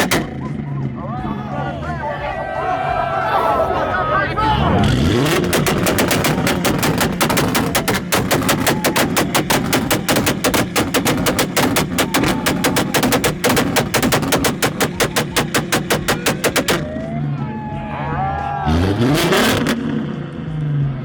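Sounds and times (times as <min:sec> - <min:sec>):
car exhaust popping rapidly: 0:00.0 - 0:00.6, 0:04.8 - 0:17.1, 0:19.0 - 0:20.0.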